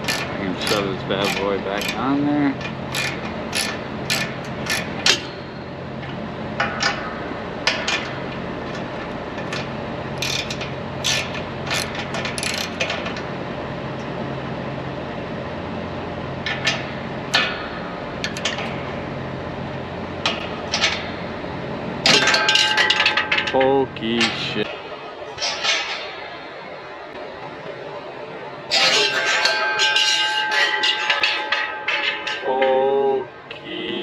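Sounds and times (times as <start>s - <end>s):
socket wrench ratcheting: 0.0s - 2.0s, 2.9s - 5.3s, 10.2s - 12.9s.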